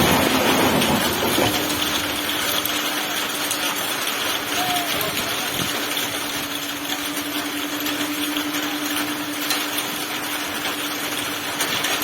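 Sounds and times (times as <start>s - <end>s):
heavy rain hiss: 0.0s - 12.0s.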